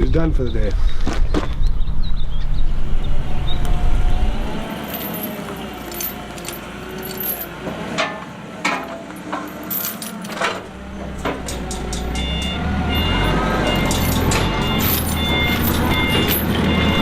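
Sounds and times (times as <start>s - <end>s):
low motor hum: 1.6s - 7.8s, 9.4s - 17.0s
metallic clinks and rattles: 4.7s - 17.0s.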